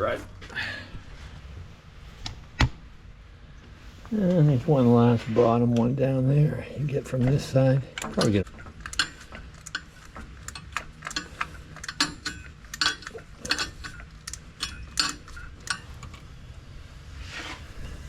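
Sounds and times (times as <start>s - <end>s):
ratchet clicking: 8.8s - 16.2s.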